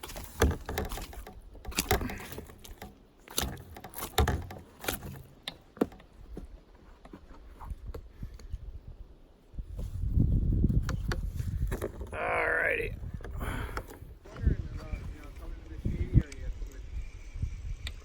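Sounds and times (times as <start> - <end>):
things rattling in a kayak: 0.0 - 8.6, 9.7 - 18.0.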